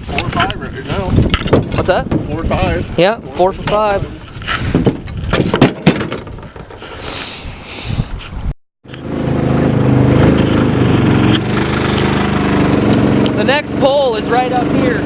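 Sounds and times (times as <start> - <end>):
mud motor running: 8.9 - 15.0.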